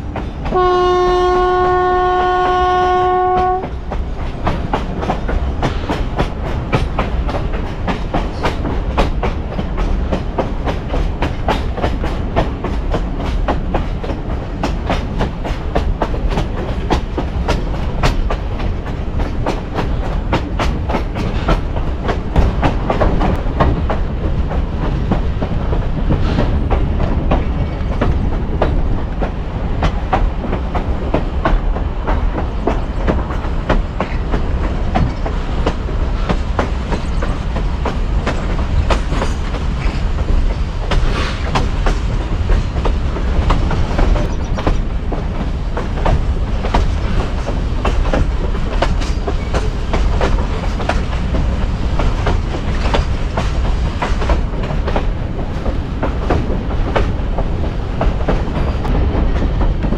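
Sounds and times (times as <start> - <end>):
train rumbling along track: 0.0 - 59.9.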